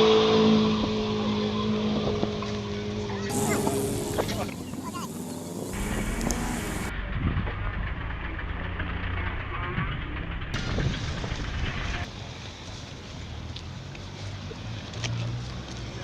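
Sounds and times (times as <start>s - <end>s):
car engines running at low revs: 0.7s - 16.0s.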